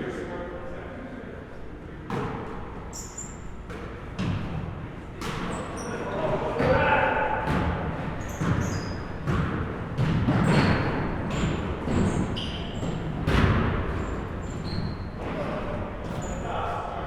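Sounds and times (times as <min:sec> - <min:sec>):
sneakers squeaking: 0:02.0 - 0:16.9
basketball bouncing: 0:06.6 - 0:14.9.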